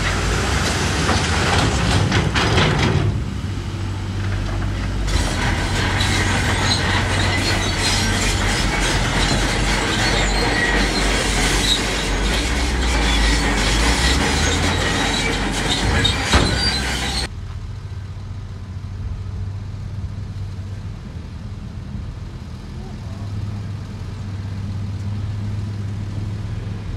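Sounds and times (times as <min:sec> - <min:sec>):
metal and rock grinding: 0:00.0 - 0:03.2, 0:04.2 - 0:17.3
diesel engine hum: 0:00.0 - 0:26.9.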